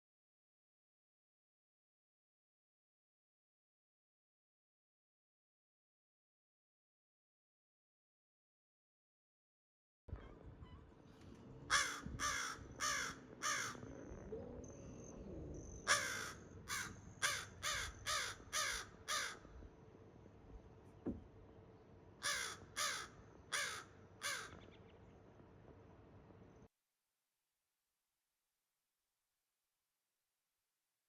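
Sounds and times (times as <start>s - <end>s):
bird calling: 11.7s - 19.4s.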